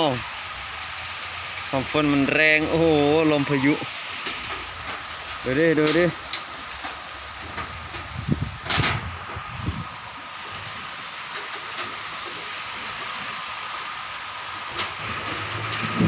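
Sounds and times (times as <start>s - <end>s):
heavy rain pouring: 0.0s - 16.0s
loud gusts of noise: 7.2s - 11.2s.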